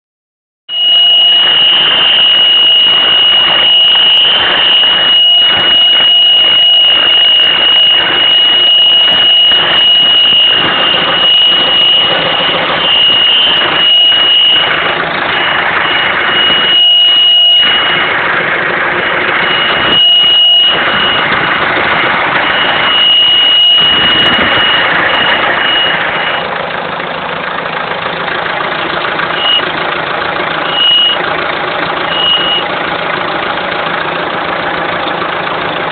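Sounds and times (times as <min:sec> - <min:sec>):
high-pitched whistle: 0:00.7 - 0:18.1, 0:19.1 - 0:21.4, 0:22.4 - 0:26.5, 0:29.4 - 0:29.6, 0:30.6 - 0:31.2, 0:32.1 - 0:32.7
diesel engine idling: 0:00.7 - 0:35.9.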